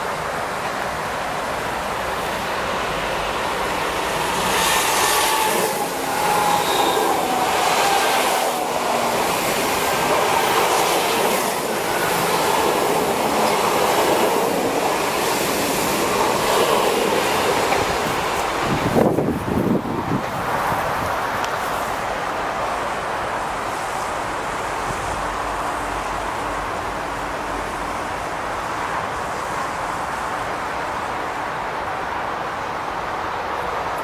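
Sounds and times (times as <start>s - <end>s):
train wheel and running noise: 0.0s - 34.0s
wheels clacking over rail joints: 4.1s - 19.3s.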